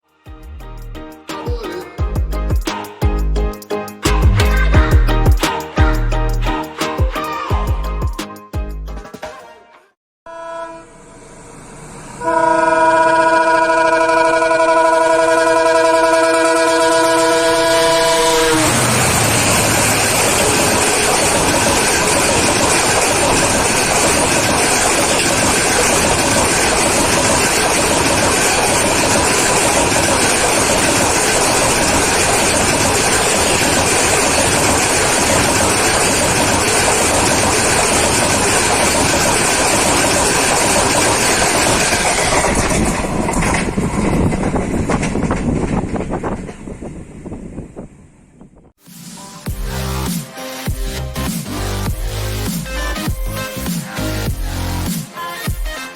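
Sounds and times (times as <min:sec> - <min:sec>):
train rushing past: 0:10.9 - 0:50.5.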